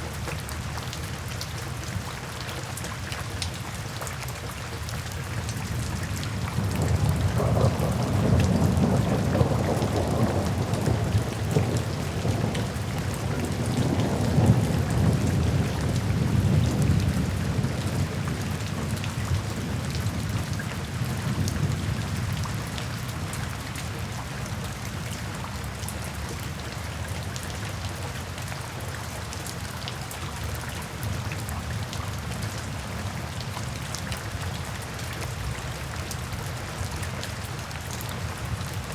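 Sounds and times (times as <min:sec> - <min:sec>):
steady rain falling: 0:00.0 - 0:38.9
low roll of thunder: 0:06.4 - 0:22.7.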